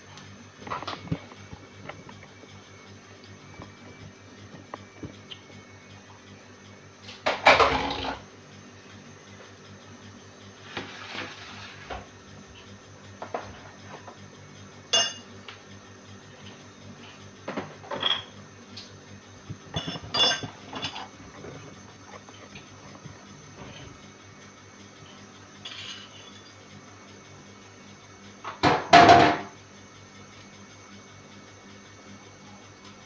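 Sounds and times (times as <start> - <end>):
low steady hum: 14.9 - 15.6, 16.4 - 24.2
dishes and cutlery clinking: 15.0 - 15.3, 19.7 - 21.1.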